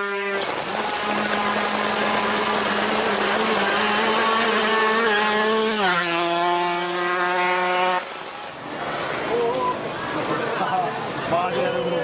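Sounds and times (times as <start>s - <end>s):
motorcycle engine passing: 0.0s - 8.6s.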